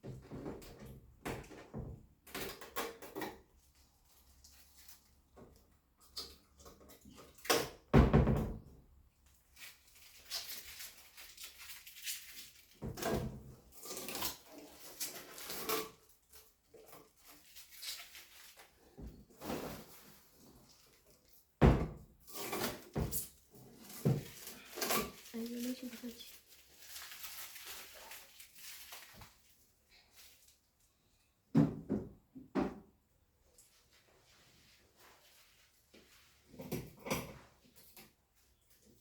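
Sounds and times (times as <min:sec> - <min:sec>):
fridge knocks and thuds: 0:21.6 - 0:22.1, 0:31.5 - 0:32.9.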